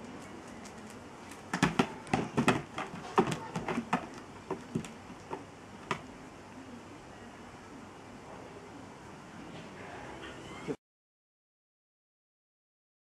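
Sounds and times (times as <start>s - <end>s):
dog claws tapping on hard floor: 0.7s - 6.1s.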